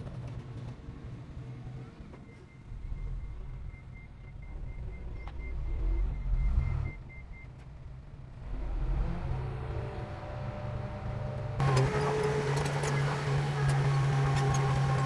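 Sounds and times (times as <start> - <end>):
diesel machinery engine rumble: 8.3 - 15.0
loud engine drone: 8.5 - 15.0.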